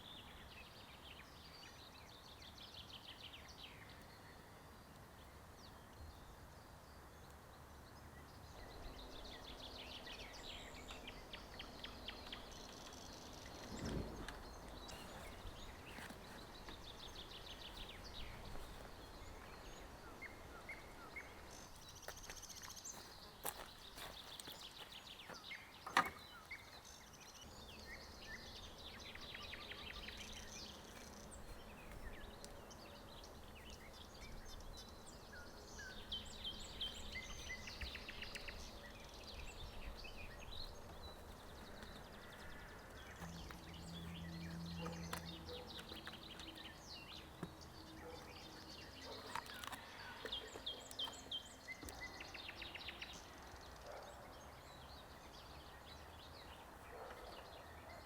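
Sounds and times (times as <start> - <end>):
birds chirping and trilling: 0.0 - 58.0.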